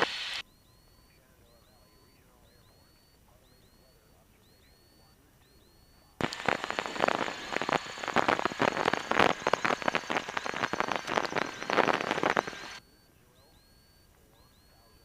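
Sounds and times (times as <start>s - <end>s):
crackling rustling on microphone: 6.2s - 12.8s.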